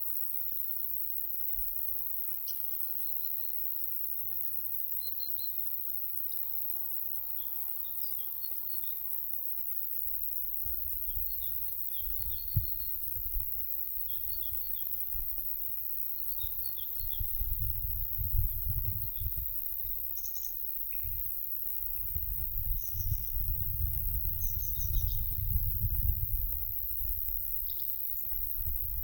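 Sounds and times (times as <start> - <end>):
wind buffeting microphone: 10.6 - 13.6, 16.4 - 20.1, 20.9 - 27.7, 28.3 - 29.0
songbirds chirping: 13.8 - 17.4.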